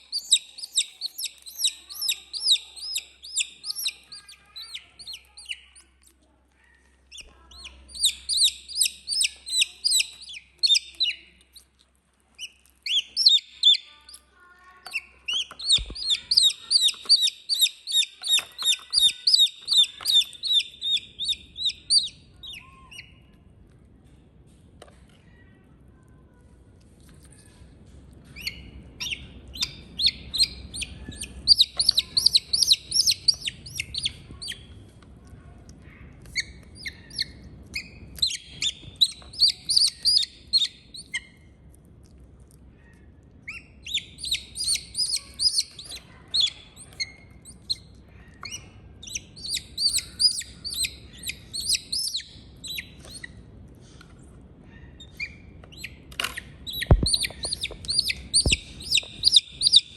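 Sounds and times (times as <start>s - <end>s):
bird chicks chirping: 0.0s - 6.0s, 7.0s - 11.8s, 12.4s - 23.3s, 28.2s - 34.8s, 36.3s - 41.6s, 42.8s - 53.6s, 54.7s - 59.9s.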